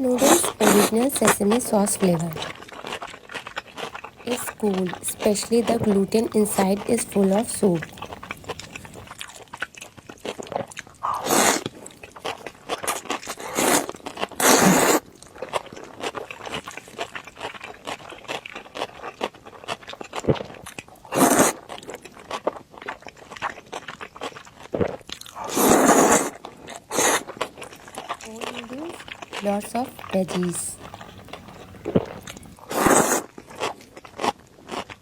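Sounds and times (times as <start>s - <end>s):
noodle slurping: 0.0s - 9.2s, 11.0s - 11.9s, 13.1s - 15.0s, 21.1s - 21.7s, 25.4s - 33.7s
wet chewing and crunching: 0.0s - 35.0s
mouth clicks: 4.3s - 9.1s, 28.2s - 33.2s.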